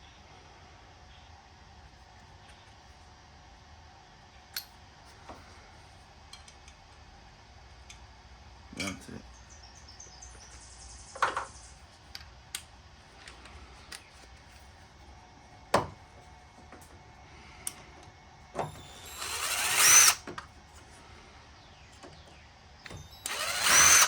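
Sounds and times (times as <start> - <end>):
power drill backing out a screw: 18.6 - 20.5, 22.9 - 24.0.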